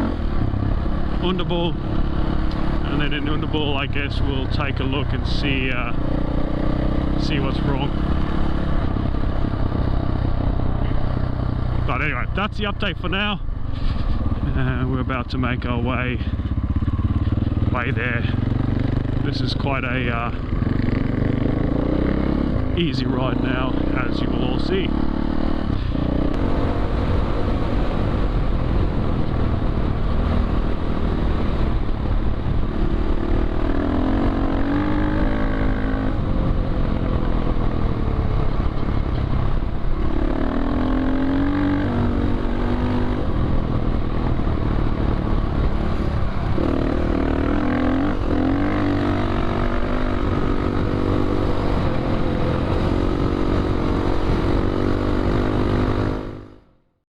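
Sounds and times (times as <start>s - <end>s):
wind and riding noise: 0.0s - 56.8s
dirt bike engine revving: 13.8s - 27.9s, 32.6s - 37.9s, 40.0s - 56.7s.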